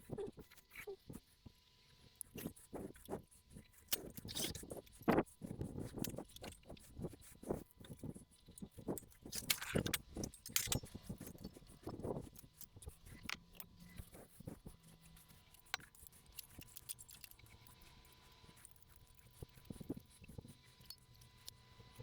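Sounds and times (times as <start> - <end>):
metallic clicks of hand tools: 9.3 - 11.6.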